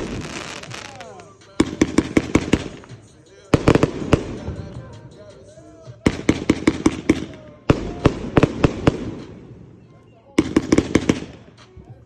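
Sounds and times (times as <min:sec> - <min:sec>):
fireworks bangs: 0:00.0 - 0:11.8
voices: 0:00.1 - 0:12.0.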